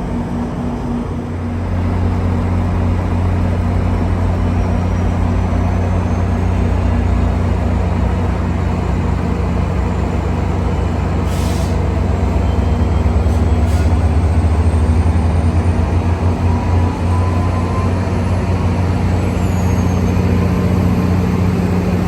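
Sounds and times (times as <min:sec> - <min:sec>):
diesel locomotive humming: 0:00.0 - 0:22.0
air hissing: 0:11.2 - 0:11.9.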